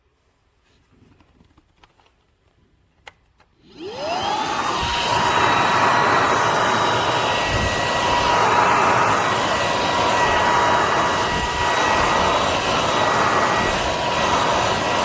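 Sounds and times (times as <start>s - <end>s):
vacuum airflow noise: 3.6s - 15.0s
vacuum motor whine: 3.6s - 15.0s.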